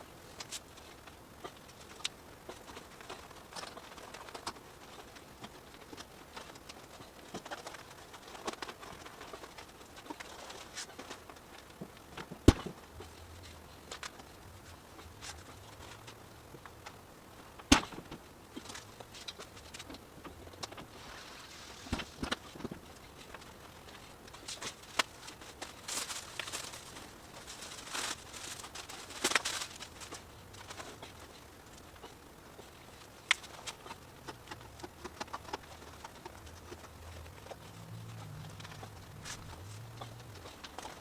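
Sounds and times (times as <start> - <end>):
short rustles: 20.7 - 31.3.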